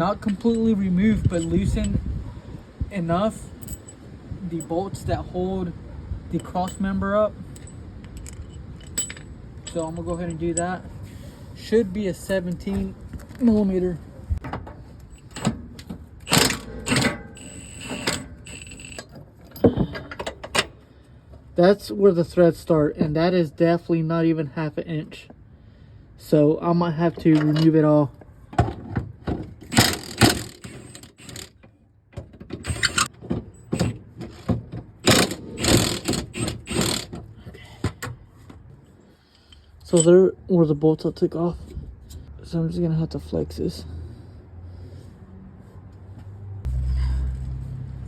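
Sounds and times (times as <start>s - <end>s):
metal hand tools clanking: 6.4s - 10.8s, 16.3s - 20.7s, 39.9s - 40.2s
ratchet wrench clicking: 16.3s - 19.1s, 29.7s - 31.5s, 32.7s - 33.1s, 35.0s - 37.1s.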